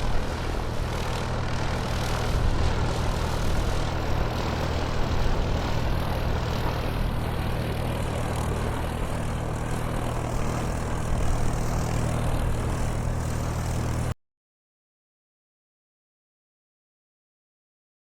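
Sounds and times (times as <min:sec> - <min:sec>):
aircraft engine drone: 0:00.0 - 0:14.2
low hum: 0:00.0 - 0:14.2.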